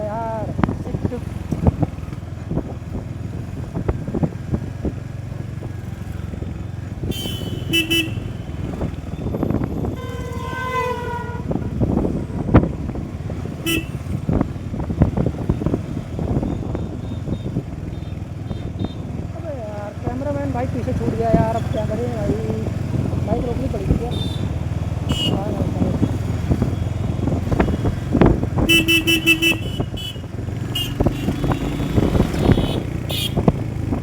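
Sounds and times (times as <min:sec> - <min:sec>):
motorcycle engine rumble: 0:00.0 - 0:34.0
vehicle horns honking: 0:07.0 - 0:12.5, 0:13.4 - 0:14.4, 0:16.3 - 0:19.2, 0:24.0 - 0:33.6.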